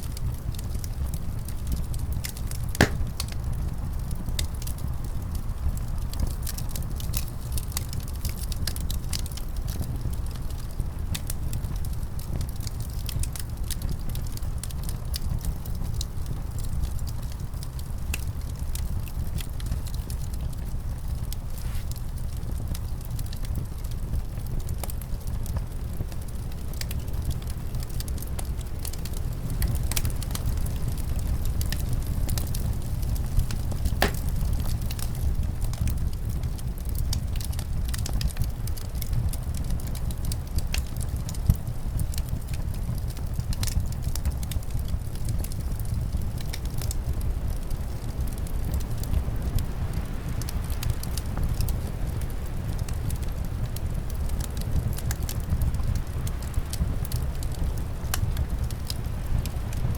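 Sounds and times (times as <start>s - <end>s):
low rumble of wind: 0.0s - 59.9s
wood fire crackling and popping: 0.1s - 59.9s.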